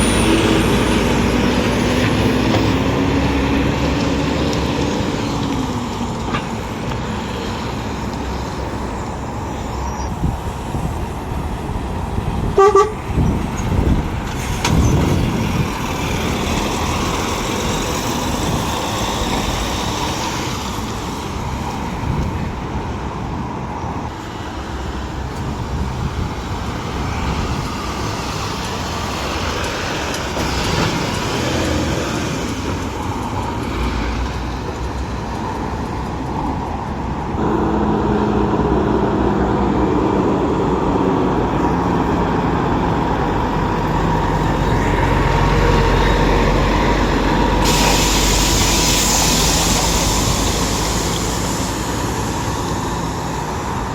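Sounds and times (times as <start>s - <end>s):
vehicles passing: 0.0s - 53.9s
car horn toot: 12.6s - 13.2s.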